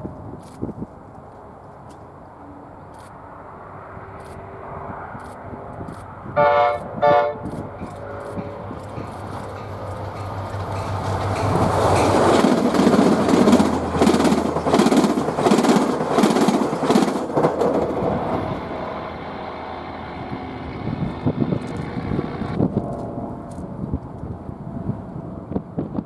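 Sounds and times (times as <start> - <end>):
train rumbling past: 0.0 - 26.0
wheels clacking over rail joints: 7.4 - 23.1.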